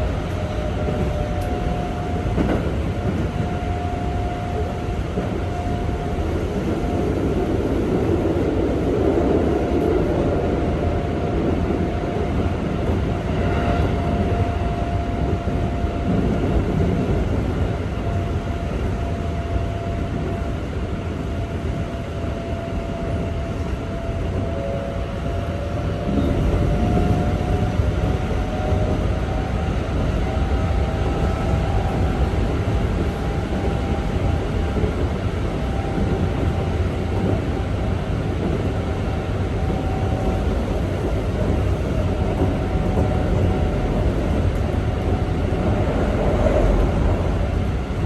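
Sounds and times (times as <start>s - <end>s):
train wheels rumbling on rail: 0.0s - 48.0s.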